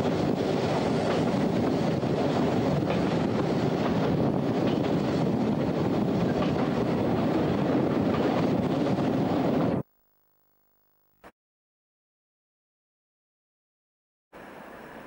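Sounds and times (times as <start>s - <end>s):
train running noise: 0.0s - 9.8s
wind buffeting microphone: 0.0s - 9.8s.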